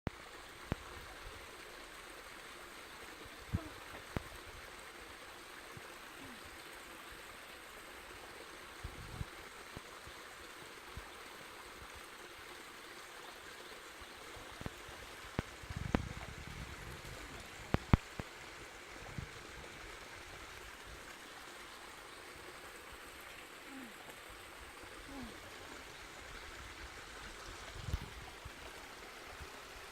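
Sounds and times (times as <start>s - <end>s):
outdoor ambience hiss: 0.1s - 29.9s.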